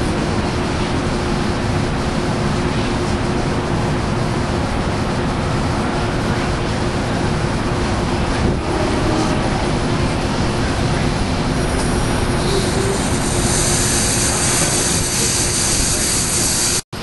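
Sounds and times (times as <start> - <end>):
passenger train rumbling: 0.0 - 17.0
high hissing squeal: 11.5 - 16.8.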